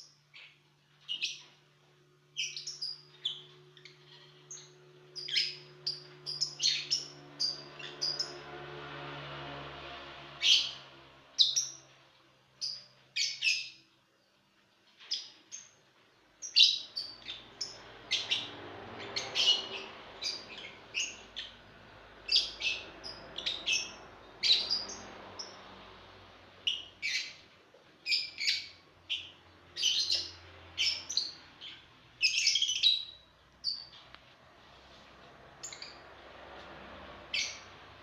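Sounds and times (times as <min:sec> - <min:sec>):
lovebirds chirping: 0:00.0 - 0:01.6, 0:02.4 - 0:08.4, 0:12.6 - 0:13.9, 0:16.4 - 0:25.9, 0:26.6 - 0:34.2, 0:35.5 - 0:36.2, 0:37.3 - 0:37.8.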